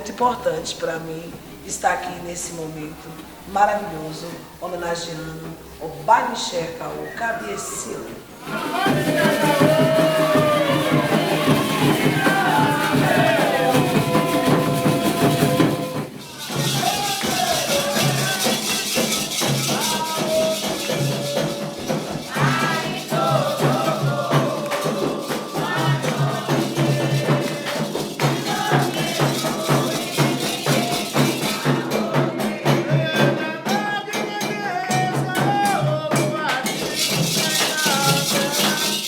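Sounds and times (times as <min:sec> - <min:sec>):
voices singing a chant: 0:06.0 - 0:39.0
drum rhythm: 0:08.4 - 0:39.0
rattles and shakers: 0:08.5 - 0:32.7, 0:33.8 - 0:39.0.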